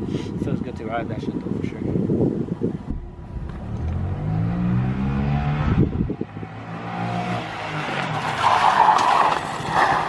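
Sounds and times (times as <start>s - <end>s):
motorcycle engine revving: 3.0s - 7.7s.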